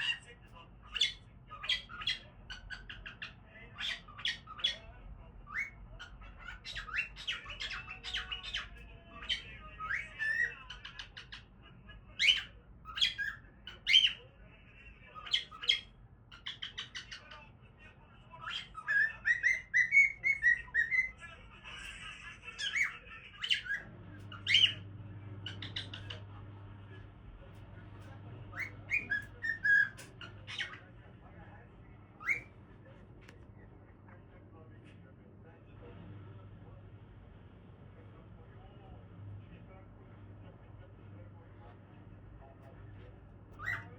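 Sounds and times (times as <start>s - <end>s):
cockatiel chirps and squawks: 0.0s - 11.6s, 12.2s - 14.3s, 15.2s - 17.4s, 18.4s - 24.8s, 25.4s - 26.3s, 28.5s - 30.9s, 32.2s - 32.6s, 43.5s - 43.9s.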